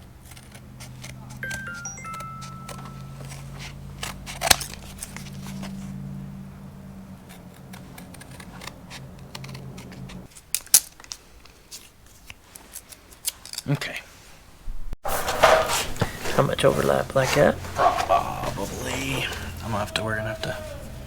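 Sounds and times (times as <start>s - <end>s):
scissors snipping: 0.2s - 2.4s, 7.2s - 13.6s.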